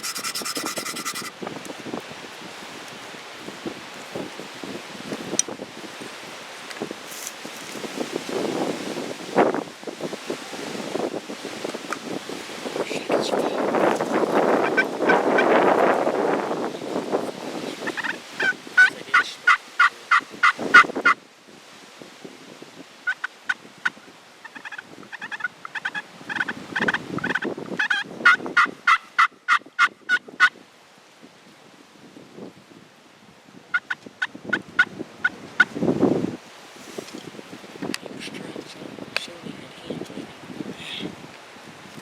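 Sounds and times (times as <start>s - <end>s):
turkey yelping: 0.0s - 1.3s, 17.8s - 21.2s, 24.5s - 30.5s, 33.7s - 34.9s
wind rumbling on microphone: 0.0s - 28.9s, 29.6s - 42.0s.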